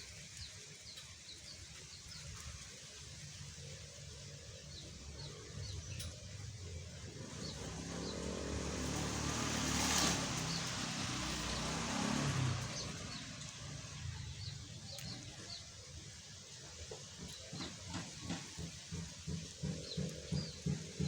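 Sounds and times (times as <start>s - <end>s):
motorcycle passing by: 6.6s - 15.6s.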